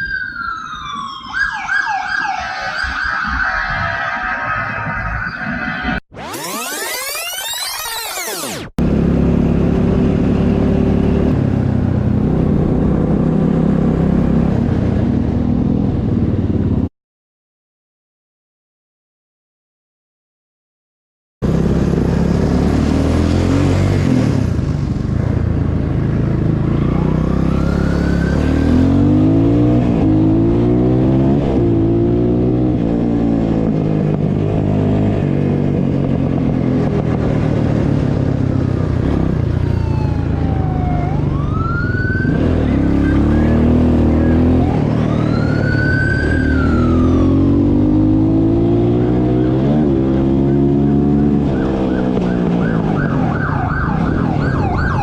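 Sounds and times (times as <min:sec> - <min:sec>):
police siren wailing: 0:00.0 - 0:08.8, 0:26.6 - 0:31.1, 0:38.8 - 0:48.8, 0:50.1 - 0:55.0
vehicle engine accelerating: 0:05.5 - 0:16.9, 0:21.4 - 0:55.0.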